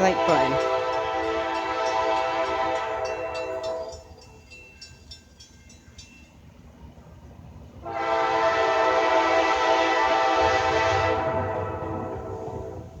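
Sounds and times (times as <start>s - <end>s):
locomotive air horn blasts: 0.0s - 4.0s, 7.8s - 12.9s.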